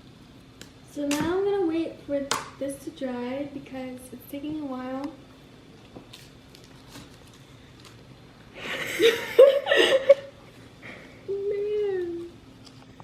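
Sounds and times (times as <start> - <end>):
breathy laughter: 8.6 - 10.3.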